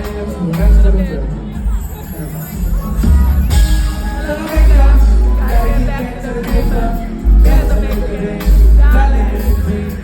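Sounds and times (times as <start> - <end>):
live band music: 0.0 - 10.0
person singing: 3.5 - 10.0.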